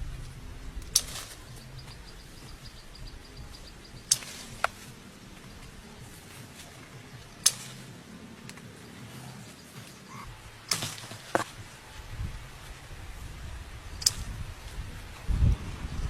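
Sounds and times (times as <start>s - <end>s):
faint low hum: 0.0s - 16.0s
sharp swishes or clicks: 4.1s - 4.9s.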